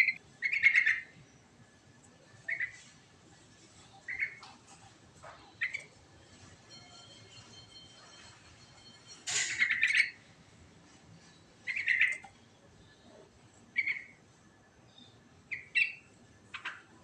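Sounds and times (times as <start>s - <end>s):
bulbul singing: 0.0s - 1.2s, 8.7s - 10.3s, 11.6s - 13.1s, 14.9s - 16.9s.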